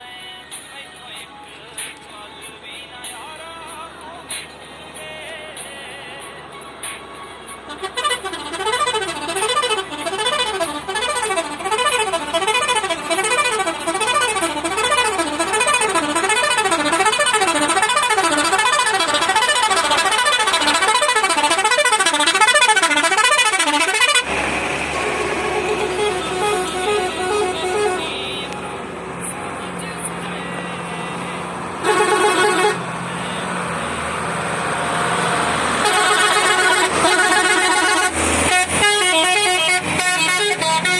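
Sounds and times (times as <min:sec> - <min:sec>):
vehicle noise: 0:00.0 - 0:40.9
truck electronic warbling horn: 0:07.4 - 0:28.8, 0:30.8 - 0:34.0, 0:34.7 - 0:40.9.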